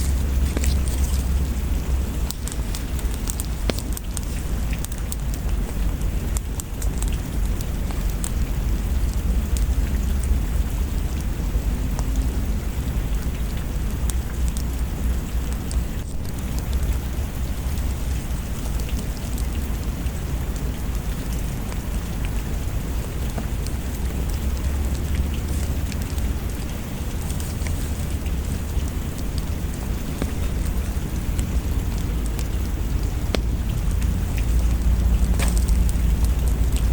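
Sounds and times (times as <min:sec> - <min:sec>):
heavy rain: 0:00.0 - 0:36.9
wood fire crackling: 0:00.0 - 0:36.9.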